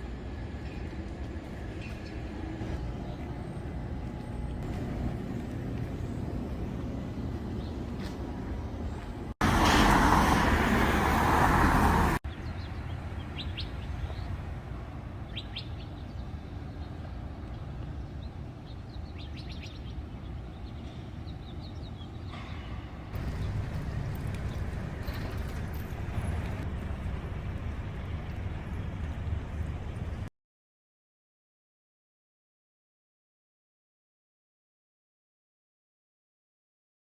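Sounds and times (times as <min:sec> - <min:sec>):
traffic rumble: 0:00.0 - 0:30.3
small birds chirping: 0:15.2 - 0:24.9.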